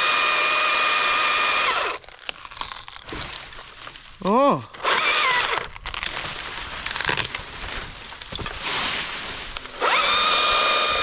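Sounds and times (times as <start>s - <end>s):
chainsaw whining: 0.0s - 2.0s, 4.7s - 5.7s, 9.6s - 11.0s
branches and leaves rustling: 1.7s - 11.0s.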